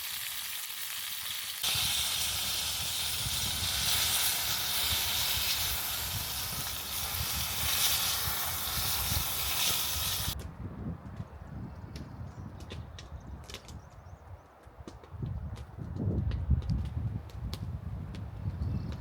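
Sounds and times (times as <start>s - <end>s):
food sizzling over wood fire: 0.0s - 10.4s.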